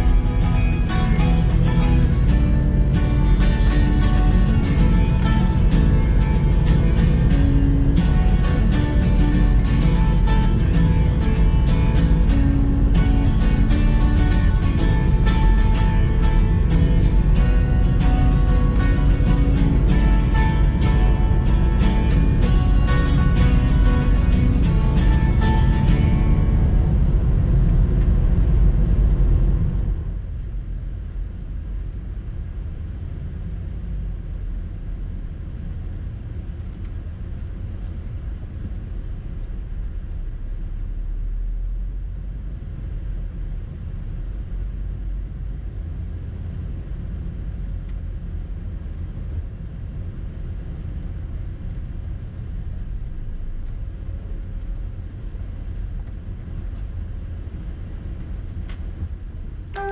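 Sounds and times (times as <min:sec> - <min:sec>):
music: 0:00.0 - 0:27.4
train rumbling: 0:00.0 - 0:59.9.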